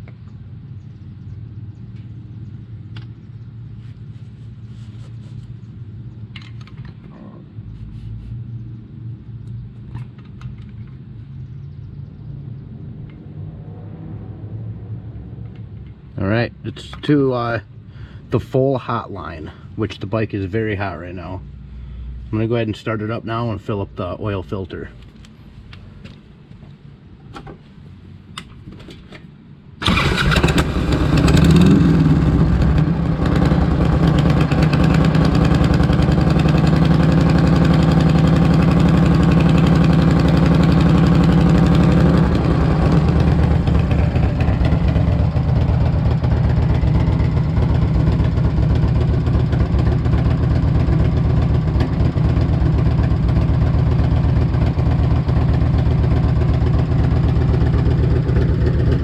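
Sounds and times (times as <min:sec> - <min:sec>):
motorcycle engine idling: 0:29.8 - 0:59.0.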